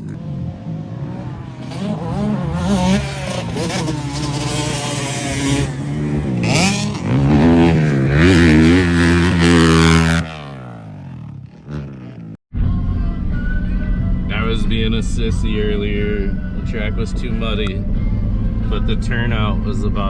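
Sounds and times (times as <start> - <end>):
dirt bike engines revving: 0.0 - 12.4.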